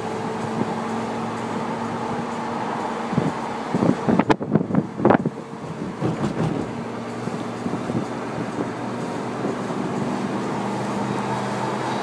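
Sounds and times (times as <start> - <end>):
car engine running while driving: 0.0 - 12.0.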